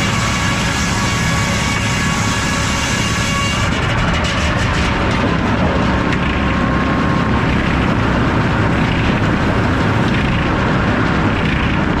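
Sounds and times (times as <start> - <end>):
circular saw running: 0.0 - 6.0
deep rumble: 0.0 - 12.0.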